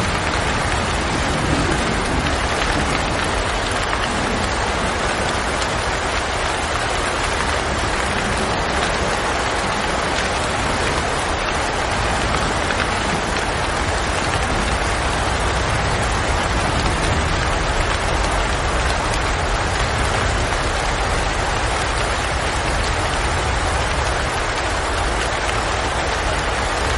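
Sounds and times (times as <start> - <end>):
steady rain: 0.0 - 26.9.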